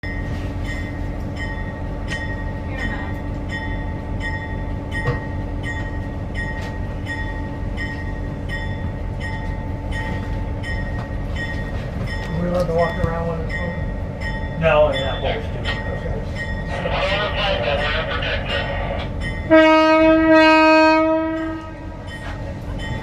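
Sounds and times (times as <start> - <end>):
train rumbling on track: 0.0 - 23.0.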